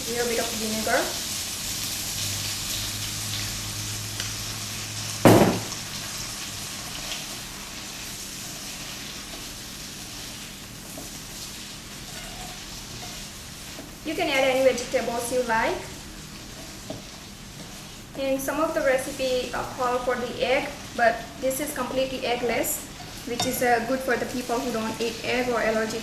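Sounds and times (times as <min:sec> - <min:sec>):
vegetables sizzling in oil: 0:00.0 - 0:26.0
loud knock: 0:05.3 - 0:05.8.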